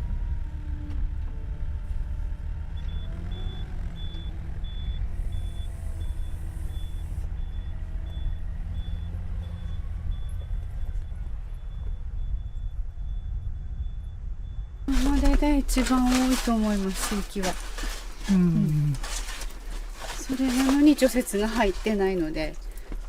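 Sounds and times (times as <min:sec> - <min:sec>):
heavy vehicle engine rumbling: 0:00.0 - 0:23.0
reversing alarm beeping: 0:02.8 - 0:17.2.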